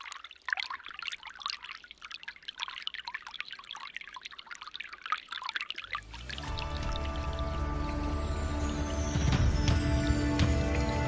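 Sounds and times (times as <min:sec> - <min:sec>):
water trickling and bubbling: 0:00.0 - 0:11.0
sustained music chords: 0:06.1 - 0:11.0.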